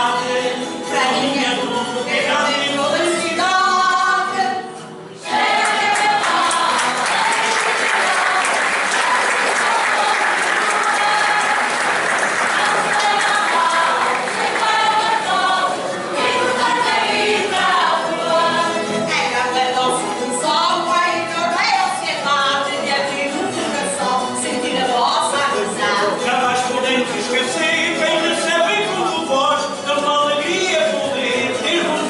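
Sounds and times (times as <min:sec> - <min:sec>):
group singing: 0:00.0 - 0:20.4, 0:22.6 - 0:32.0
audience applause: 0:05.4 - 0:15.9.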